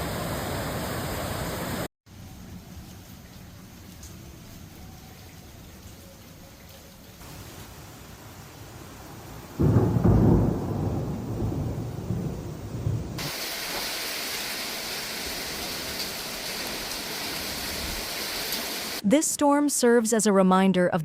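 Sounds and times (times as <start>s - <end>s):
heavy rain hiss: 0.0s - 5.9s, 7.1s - 19.0s
thunder crack and rumble: 9.5s - 13.9s.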